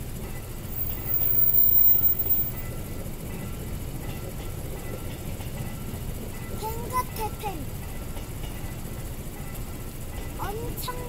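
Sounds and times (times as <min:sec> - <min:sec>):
crossing warning bell ringing: 0:00.0 - 0:11.0
train wheels rumbling on rails: 0:00.0 - 0:11.0.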